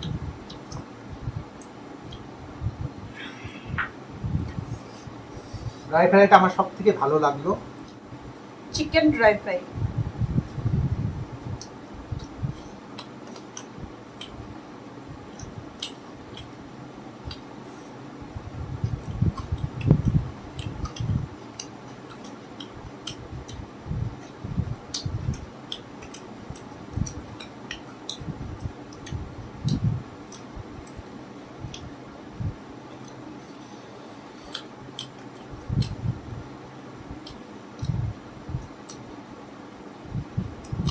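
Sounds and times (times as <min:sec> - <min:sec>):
people chewing food: 0:00.0 - 0:00.9, 0:11.4 - 0:32.1, 0:32.9 - 0:36.2, 0:37.1 - 0:39.3, 0:40.6 - 0:40.9.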